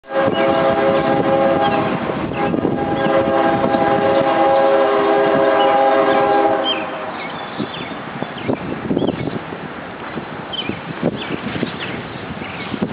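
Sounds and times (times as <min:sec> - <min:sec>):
locomotive air horn blasts: 0:00.0 - 0:07.2
train rumbling: 0:00.0 - 0:12.9.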